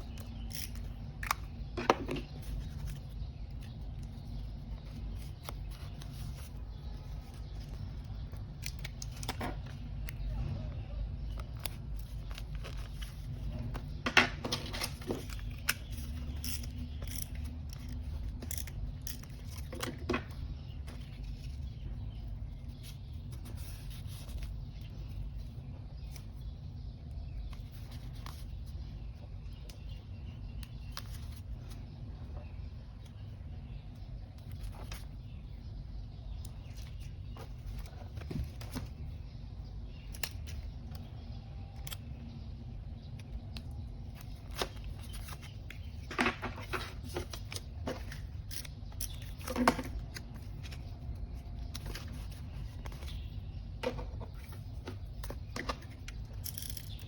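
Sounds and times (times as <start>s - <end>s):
paper rustling and clicking: 0.0s - 10.3s, 11.2s - 25.0s, 43.2s - 57.0s
steady low hum: 0.0s - 57.0s.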